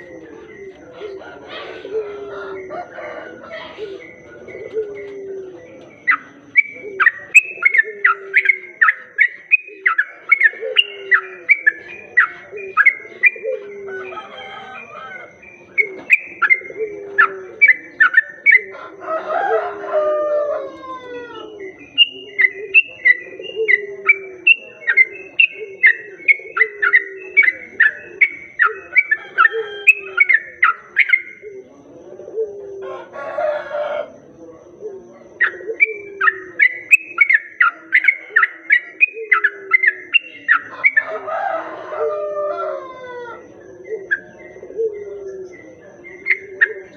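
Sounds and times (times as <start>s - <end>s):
lower repeated bird calls: 0.0s - 46.9s
bird singing bubbly chirps: 6.0s - 13.8s, 15.4s - 18.7s, 21.6s - 31.5s, 35.4s - 41.0s.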